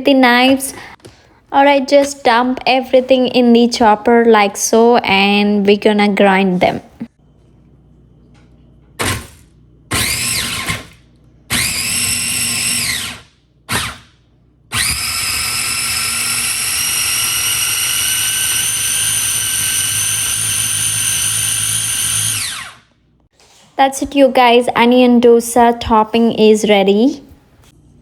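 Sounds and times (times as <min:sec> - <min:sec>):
electric food chopper whining: 0:09.0 - 0:23.0.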